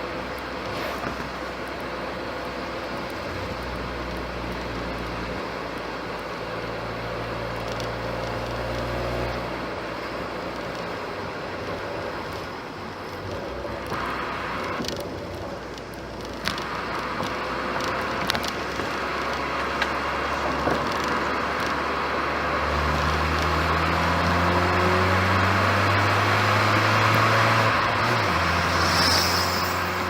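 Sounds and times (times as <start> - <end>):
road and tyre noise: 0.0 - 30.0
low engine drone: 26.2 - 30.0.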